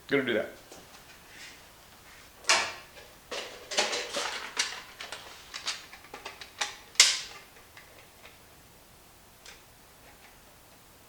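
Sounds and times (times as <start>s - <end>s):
tools clicking and clattering: 2.5s - 8.4s.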